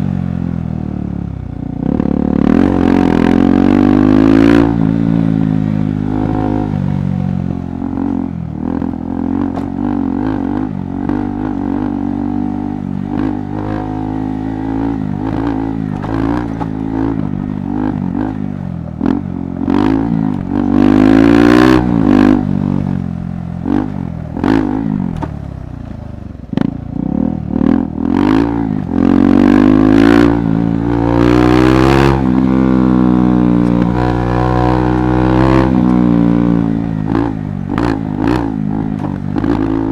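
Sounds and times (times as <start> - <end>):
motorcycle engine revving: 0.0 - 39.9
knocks and clatter on trail: 8.8 - 11.4, 14.8 - 21.0, 23.6 - 26.8, 33.6 - 39.9.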